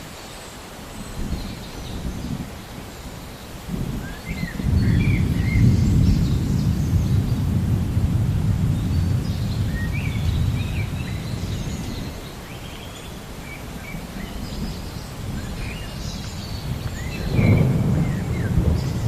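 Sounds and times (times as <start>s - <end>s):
small birds chirping: 0.2s - 7.6s, 8.6s - 19.0s
thunder rumbling: 3.7s - 12.2s, 14.0s - 19.0s.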